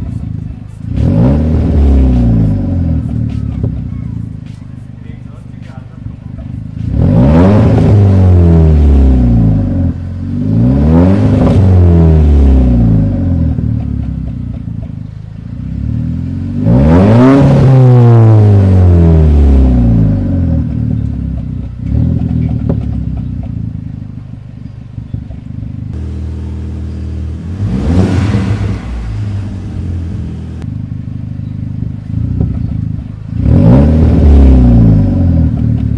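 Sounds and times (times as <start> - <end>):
car engine revving: 0.0 - 4.6, 5.3 - 24.1, 25.9 - 35.9
exhaust gurgling and crackling: 5.2 - 35.9.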